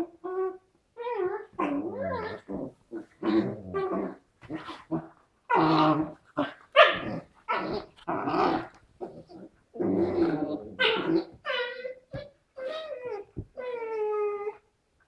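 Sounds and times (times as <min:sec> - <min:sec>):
dogs growling and barking: 0:01.2 - 0:11.8.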